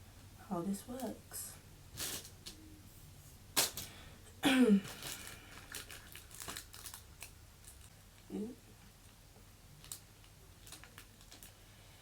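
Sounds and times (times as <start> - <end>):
plastic packaging crinkling: 4.8 - 7.9, 9.8 - 11.6.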